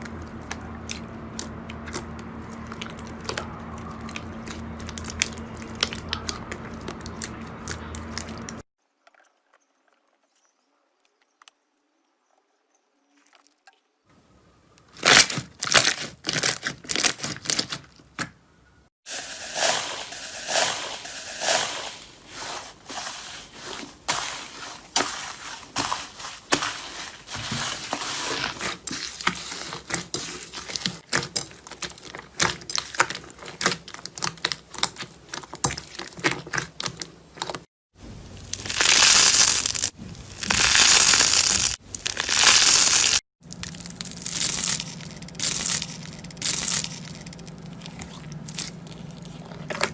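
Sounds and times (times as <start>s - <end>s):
slime squelching and crackling: 0.0s - 8.6s, 19.1s - 49.9s.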